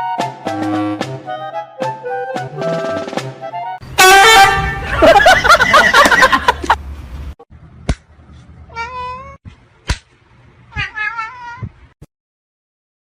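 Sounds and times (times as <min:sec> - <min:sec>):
cat meowing: 0:08.7 - 0:09.4, 0:10.7 - 0:11.8.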